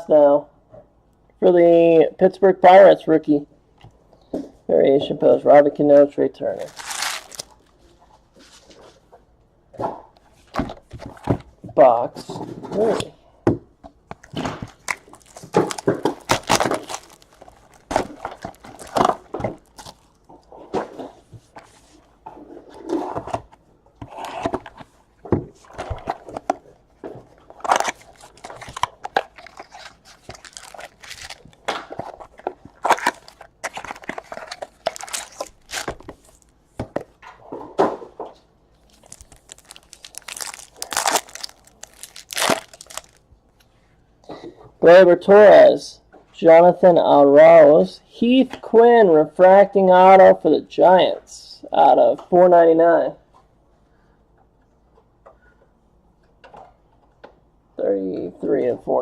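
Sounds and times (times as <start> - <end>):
card wrappers tearing and crinkling: 6.6 - 7.7, 14.2 - 20.3, 27.5 - 36.5, 38.8 - 43.2.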